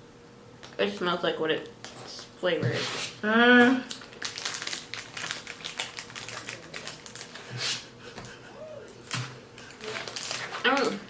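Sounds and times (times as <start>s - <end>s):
granola bar crunching: 3.9s - 7.5s.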